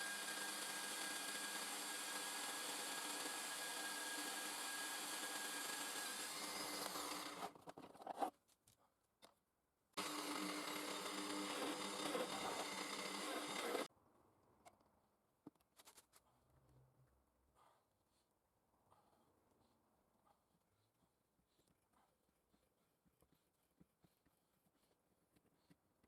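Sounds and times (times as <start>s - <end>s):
belt grinder running with whine: 0.0s - 7.5s, 10.0s - 13.9s.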